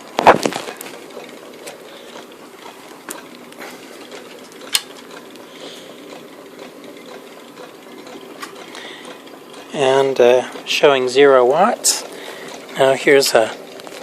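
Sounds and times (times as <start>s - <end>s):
engine mechanical clatter: 0.0s - 14.0s.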